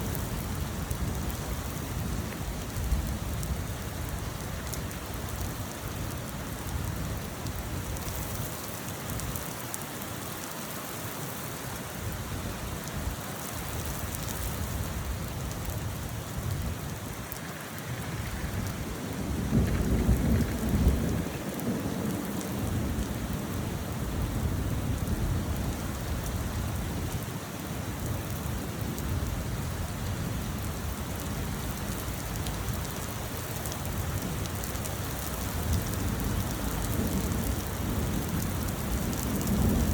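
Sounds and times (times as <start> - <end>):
steady rain falling: 0.0 - 39.9
low roll of thunder: 15.6 - 26.6, 35.6 - 39.9.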